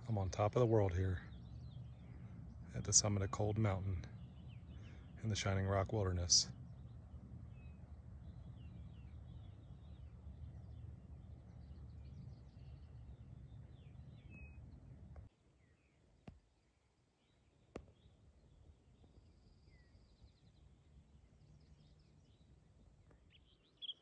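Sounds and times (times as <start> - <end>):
low rumble: 0.0 - 15.3
songbirds chirping and trilling: 0.0 - 24.0.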